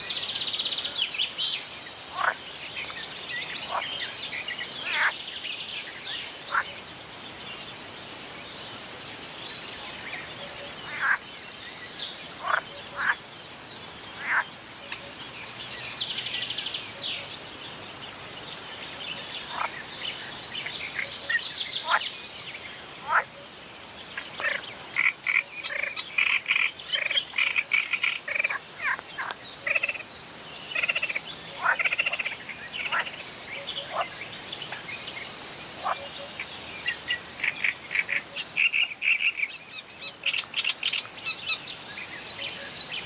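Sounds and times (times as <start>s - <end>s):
frogs croaking: 1.7s - 5.3s, 6.2s - 6.9s, 9.8s - 11.4s, 12.1s - 13.3s, 14.1s - 17.4s, 19.0s - 35.0s, 35.7s - 43.0s
bird calls: 18.6s - 23.5s, 24.1s - 43.0s.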